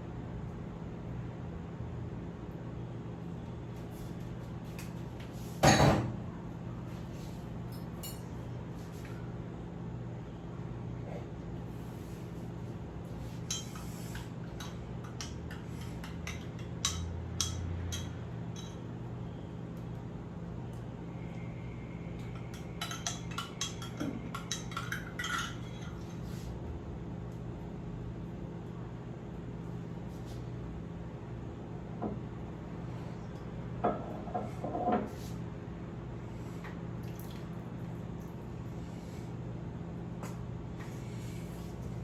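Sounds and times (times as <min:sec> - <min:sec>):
steady low hum: 0:00.0 - 0:42.0
utensils and dishes clinking: 0:07.7 - 0:08.4, 0:13.4 - 0:18.8, 0:22.4 - 0:26.2.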